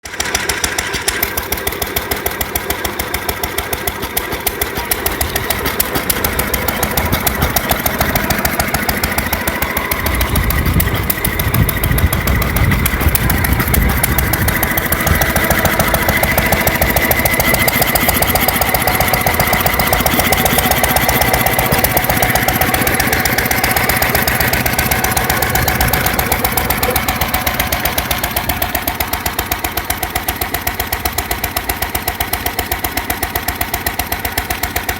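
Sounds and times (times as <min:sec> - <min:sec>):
stationary engine running: 0:00.0 - 0:34.9
deeper rumble: 0:05.2 - 0:28.7.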